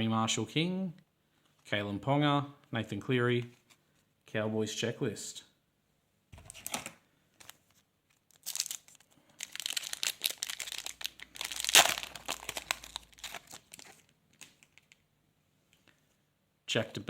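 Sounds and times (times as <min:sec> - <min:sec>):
card pack wrapper tearing and crinkling: 0:06.4 - 0:15.0.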